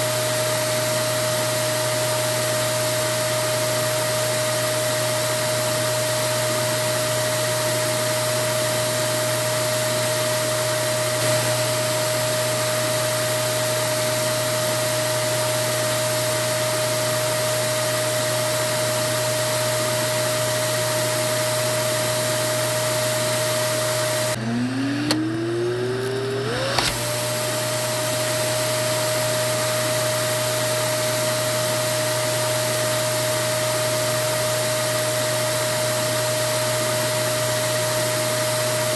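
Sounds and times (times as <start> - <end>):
vacuum cleaner motor whining: 0.0 - 38.9.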